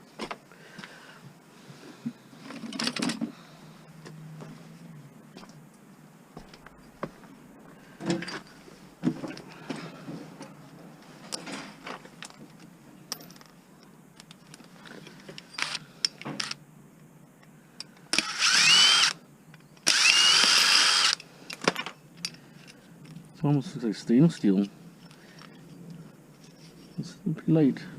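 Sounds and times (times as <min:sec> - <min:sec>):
power drill whining: 0:18.1 - 0:19.2, 0:19.8 - 0:21.2.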